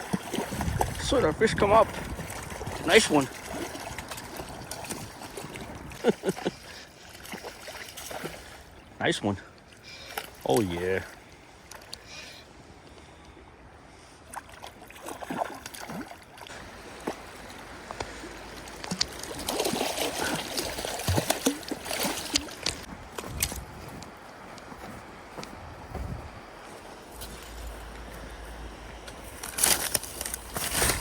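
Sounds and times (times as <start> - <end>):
water splashing: 0.0 - 8.9, 14.3 - 26.0
creek water running: 0.0 - 12.8, 14.2 - 31.0.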